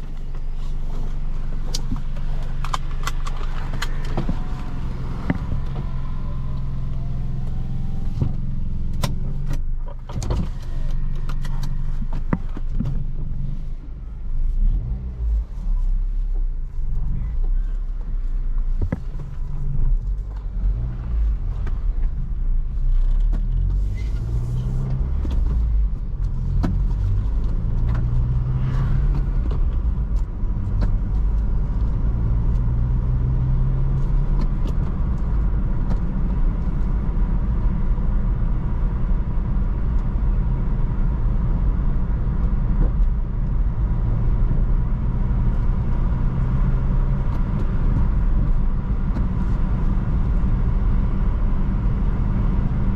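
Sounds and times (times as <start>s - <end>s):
car engine running: 0.0s - 52.9s
road rumble: 0.0s - 52.9s.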